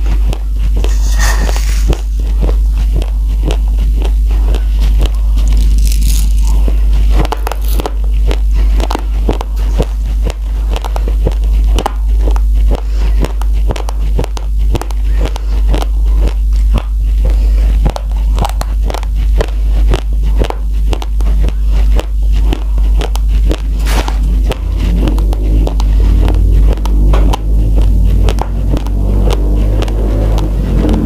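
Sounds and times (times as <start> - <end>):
raw rice being chewed: 0.0 - 31.0
steady low hum: 0.0 - 31.0.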